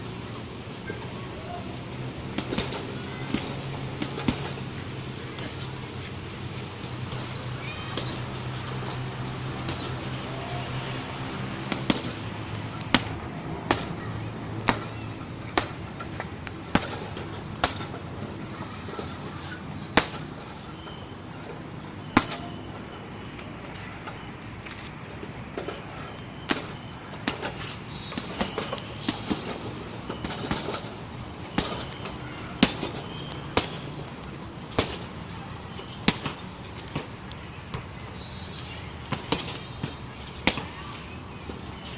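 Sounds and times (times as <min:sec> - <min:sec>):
thuds on heavy punching bag: 0:16.7 - 0:18.0, 0:19.9 - 0:20.4, 0:22.0 - 0:22.6, 0:26.4 - 0:30.9, 0:31.5 - 0:33.9, 0:34.7 - 0:35.1, 0:36.1 - 0:36.4, 0:39.1 - 0:40.7.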